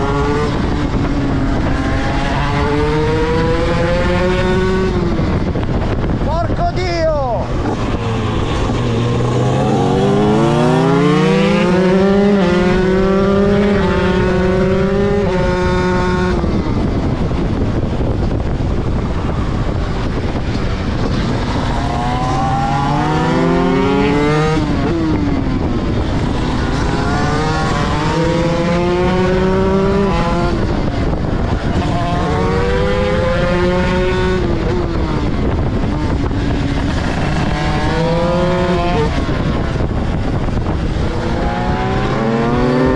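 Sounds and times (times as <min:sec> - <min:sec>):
motorcycle engine accelerating: 0:00.0 - 0:06.3, 0:07.4 - 0:42.9.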